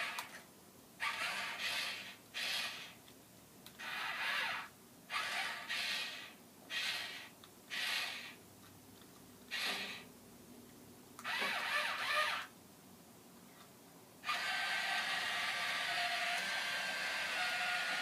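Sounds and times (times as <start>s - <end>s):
toy electric motor whirring: 0.0s - 0.4s, 1.0s - 3.0s, 3.8s - 8.4s, 9.5s - 10.1s, 11.2s - 12.5s, 14.2s - 18.0s.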